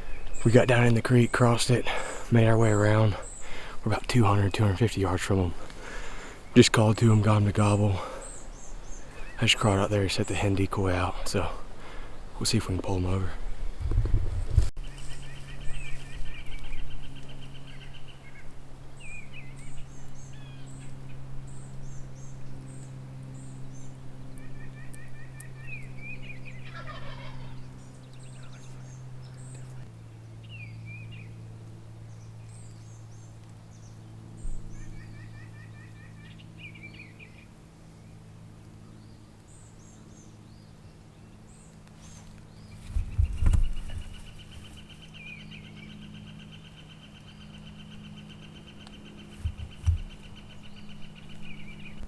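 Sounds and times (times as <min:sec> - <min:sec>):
small songbirds chirping: 0:00.0 - 0:13.3, 0:14.4 - 0:52.0
hunter's turkey calls: 0:26.6 - 0:27.6
turkey gobbling: 0:26.6 - 0:27.6.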